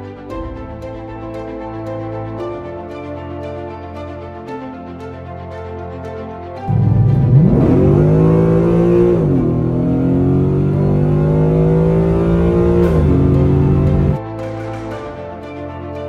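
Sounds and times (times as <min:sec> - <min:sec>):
car engine revving at full throttle: 0:06.7 - 0:14.2.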